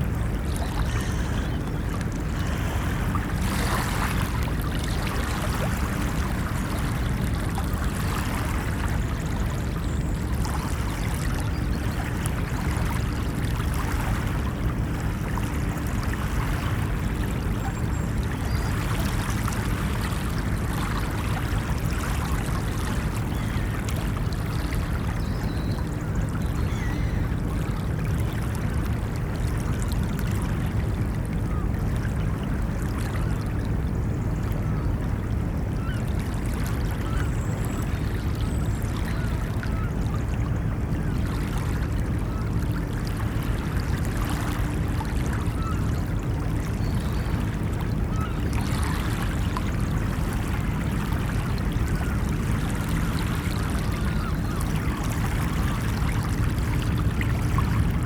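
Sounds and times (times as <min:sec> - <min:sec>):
ocean waves washing on beach: 0:00.0 - 0:25.2
low rumble of surf: 0:00.0 - 0:58.0.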